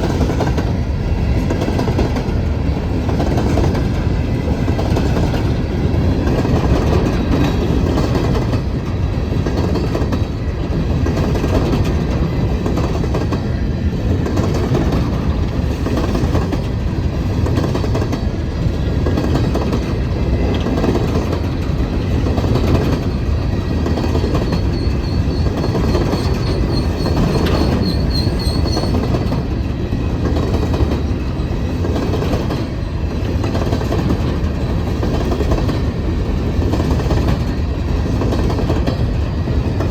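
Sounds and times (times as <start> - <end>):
train cars rumbling past: 0.0 - 39.9
wheels clacking over rail joints: 14.1 - 39.9
high wheel squeal: 24.4 - 29.1.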